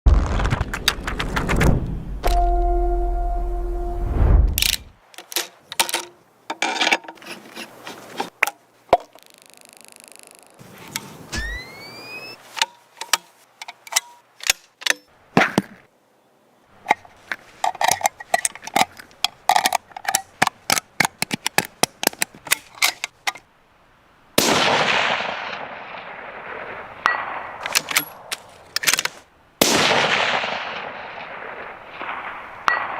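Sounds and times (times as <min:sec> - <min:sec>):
metallic rifle clicks and clanks: 0:04.6 - 0:07.4, 0:12.6 - 0:15.1, 0:16.9 - 0:23.4, 0:27.1 - 0:29.2
rifle shots with echo: 0:29.6 - 0:32.9.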